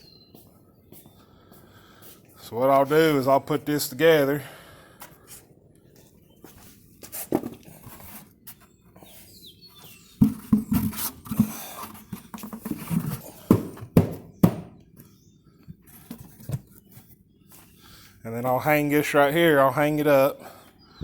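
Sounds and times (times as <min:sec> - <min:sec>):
scraping and rustling: 0:06.6 - 0:13.7, 0:15.8 - 0:17.2
sharp knocks: 0:13.5 - 0:14.8.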